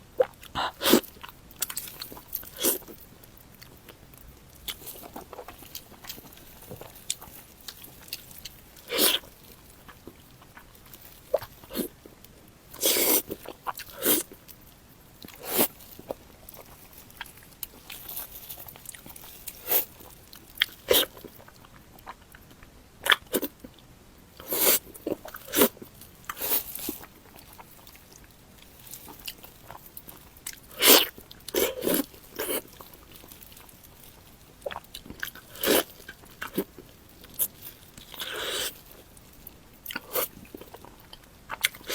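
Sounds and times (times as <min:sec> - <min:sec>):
crunchy bites: 0:00.2 - 0:03.0, 0:03.6 - 0:14.4, 0:24.4 - 0:41.9
wet chewing: 0:00.2 - 0:23.8, 0:24.4 - 0:41.9.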